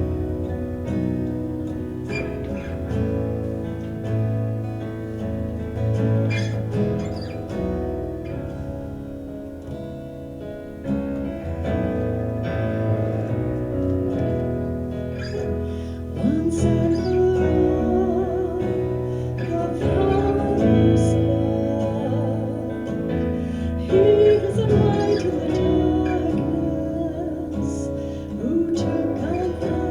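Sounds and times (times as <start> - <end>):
guitar accompaniment: 0.0 - 29.9
worship band playing: 11.7 - 29.9
person singing with vibrato: 15.8 - 29.9.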